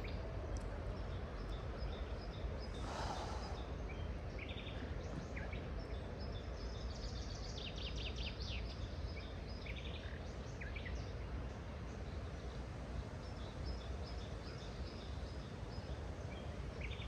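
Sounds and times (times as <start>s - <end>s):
wild birds chirping: 0.0s - 17.0s
low rushing background: 2.5s - 5.1s.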